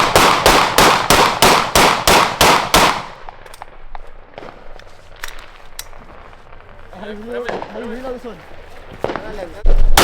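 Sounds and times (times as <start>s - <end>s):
faint pops and crackles: 3.2s - 10.0s
firework reports: 6.1s - 10.0s.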